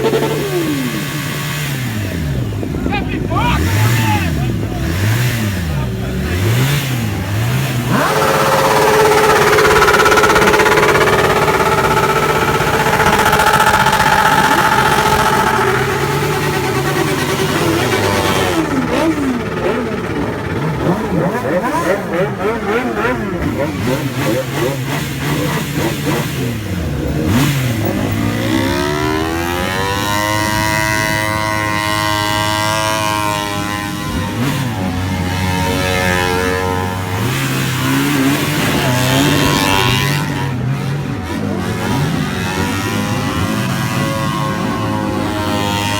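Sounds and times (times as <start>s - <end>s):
motorcycle engine revving: 0.0s - 45.9s
engine idling hum: 7.0s - 23.3s.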